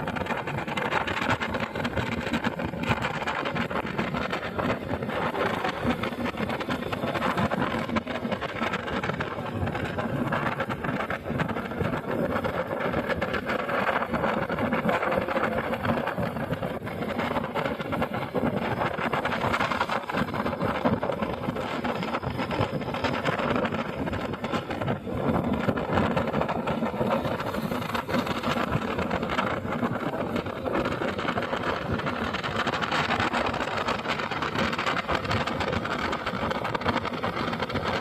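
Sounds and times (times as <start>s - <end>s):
motorcycle engine running: 0.0s - 38.0s
road and wind noise: 0.0s - 38.0s.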